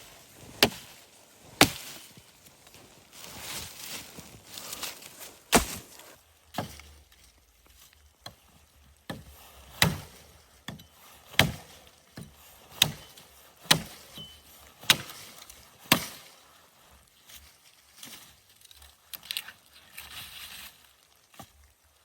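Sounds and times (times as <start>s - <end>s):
wood being chopped: 0.5s - 1.0s, 1.6s - 2.1s, 4.6s - 6.9s, 9.1s - 15.3s, 15.9s - 16.2s.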